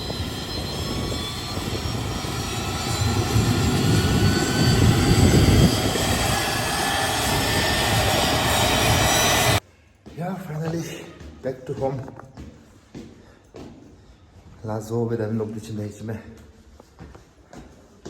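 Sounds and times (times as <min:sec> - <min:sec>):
airliner engines whining and rumbling: 0:00.0 - 0:09.6.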